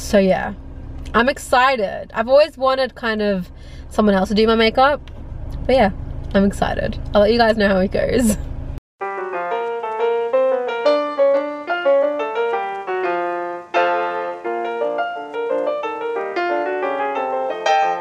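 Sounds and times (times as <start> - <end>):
piano playing: 9.0 - 18.0.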